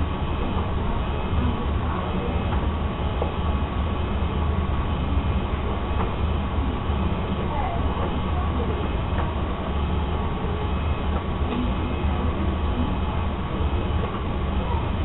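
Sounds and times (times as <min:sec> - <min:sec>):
washing machine rumbling: 0:00.0 - 0:15.0.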